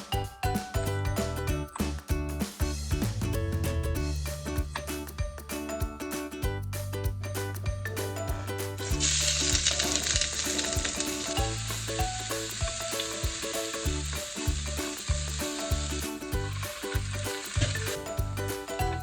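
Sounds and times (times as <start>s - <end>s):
background music with steady beat: 0.0s - 19.0s.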